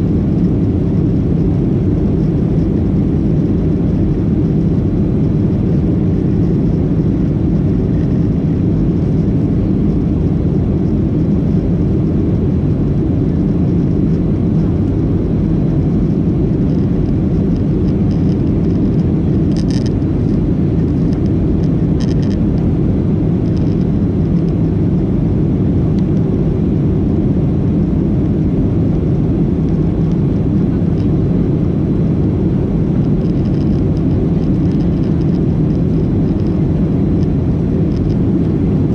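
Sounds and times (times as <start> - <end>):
airplane cabin roar: 0.0 - 38.9.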